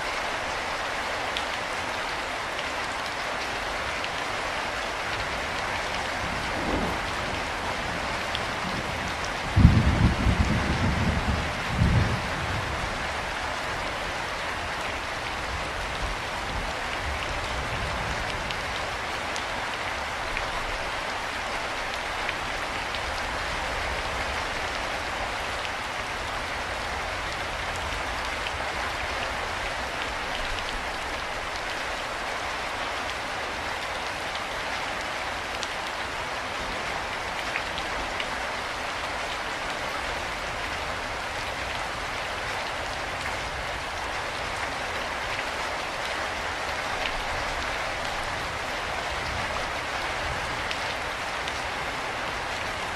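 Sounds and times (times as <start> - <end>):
rain falling: 0.0 - 52.9.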